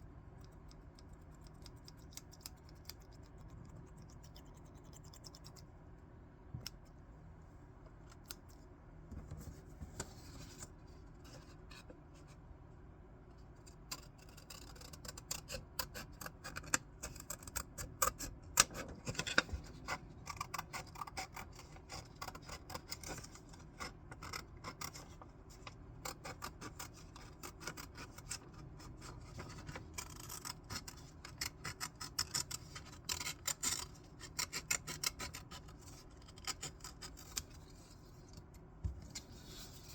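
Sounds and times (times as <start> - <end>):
scissors cutting paper: 13.8 - 25.2, 26.0 - 37.6.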